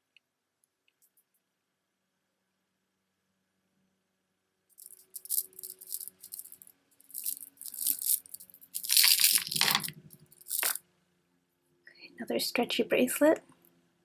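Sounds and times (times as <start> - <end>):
beaded jewelry rattling: 4.7 - 10.8.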